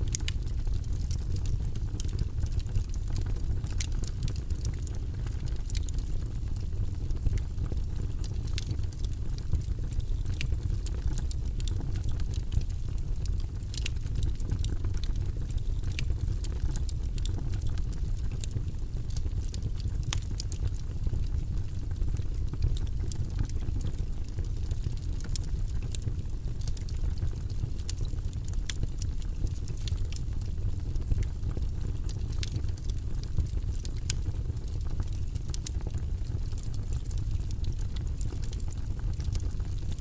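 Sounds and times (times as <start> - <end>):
fire crackling and popping: 0.0 - 40.0
fire rumbling: 0.0 - 40.0.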